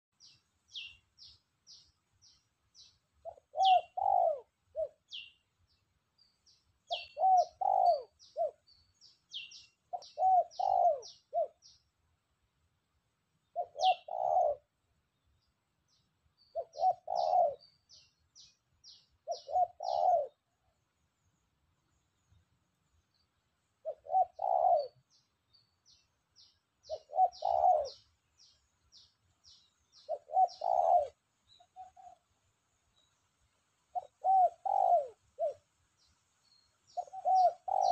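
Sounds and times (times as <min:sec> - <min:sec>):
small birds chirping: 0:00.1 - 0:12.2, 0:13.4 - 0:37.9
dove cooing: 0:03.2 - 0:05.3, 0:06.9 - 0:08.6, 0:09.3 - 0:11.7, 0:13.5 - 0:14.7, 0:16.5 - 0:17.8, 0:19.2 - 0:20.6, 0:23.8 - 0:25.2, 0:26.8 - 0:29.1, 0:30.0 - 0:32.2, 0:33.9 - 0:35.7, 0:36.9 - 0:37.9.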